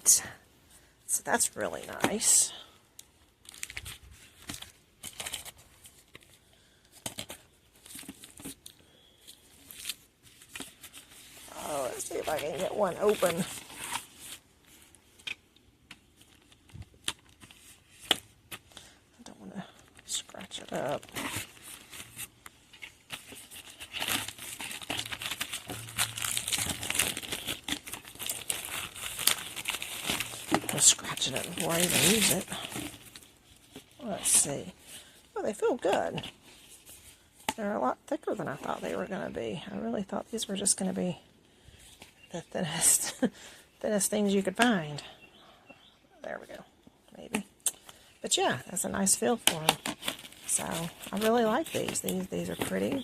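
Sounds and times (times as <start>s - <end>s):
plastic packaging crinkling: 3.3s - 18.7s, 20.0s - 34.4s, 49.1s - 53.0s.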